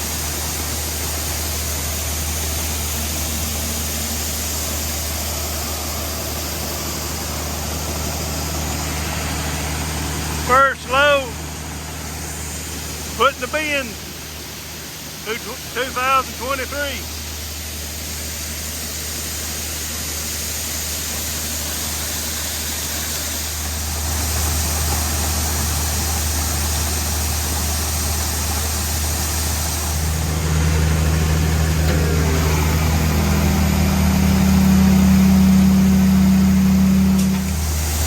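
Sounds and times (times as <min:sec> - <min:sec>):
tractor engine running: 0:00.0 - 0:38.0
low hum rising in pitch: 0:29.6 - 0:38.0.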